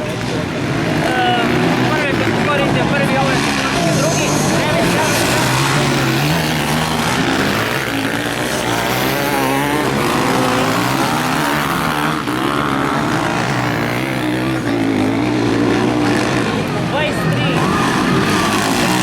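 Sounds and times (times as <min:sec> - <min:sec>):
motocross bikes revving: 0:00.0 - 0:19.0.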